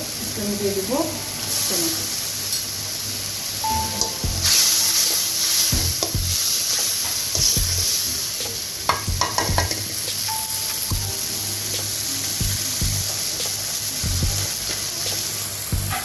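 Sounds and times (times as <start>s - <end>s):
onions sizzling in hot oil: 0.0s - 16.0s
spatula knocking against pan: 8.9s - 9.8s.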